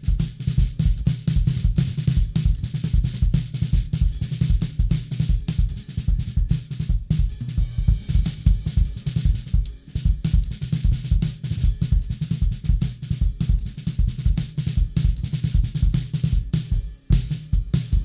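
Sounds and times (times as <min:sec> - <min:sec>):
drum kit groove: 0:00.0 - 0:18.0.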